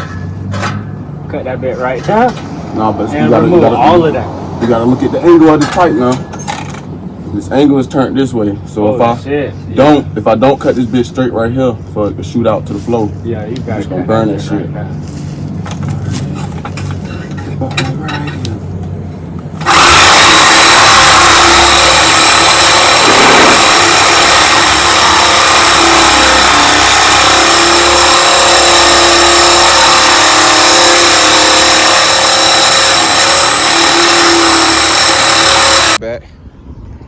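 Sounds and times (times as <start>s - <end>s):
reciprocating saw cutting metal pipe: 19.6s - 36.0s.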